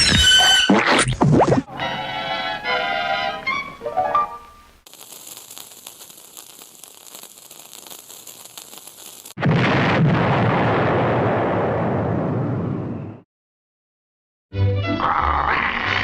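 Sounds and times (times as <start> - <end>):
faint crackling hiss: 2.5 - 9.4
explosion blast with steady rush: 9.4 - 13.2.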